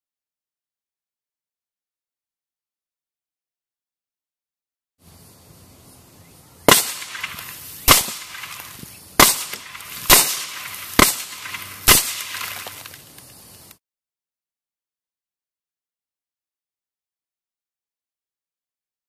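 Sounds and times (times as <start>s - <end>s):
suppressed gunshots: 6.7s - 12.8s.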